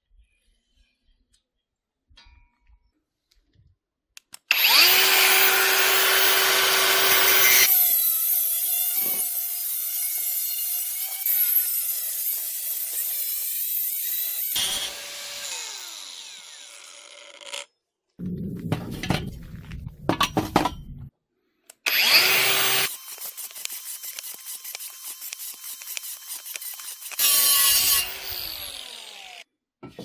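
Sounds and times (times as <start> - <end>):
power saw cutting steel pipe: 4.5 - 20.9, 21.9 - 29.4.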